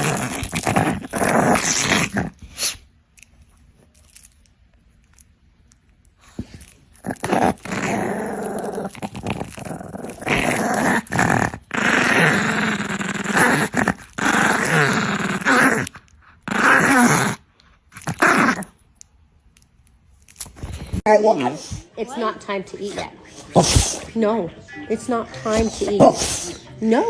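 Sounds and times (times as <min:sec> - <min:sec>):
dog growling: 0:00.0 - 0:02.8, 0:06.3 - 0:18.7, 0:22.8 - 0:24.4, 0:25.3 - 0:27.0.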